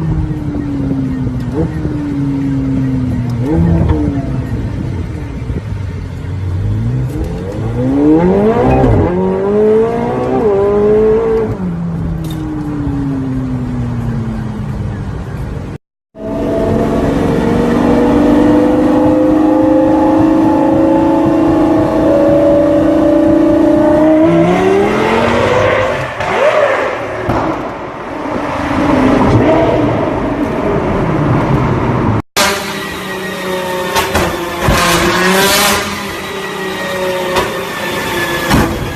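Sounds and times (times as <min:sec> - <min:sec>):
car engine accelerating: 0:06.2 - 0:14.5, 0:16.2 - 0:27.7.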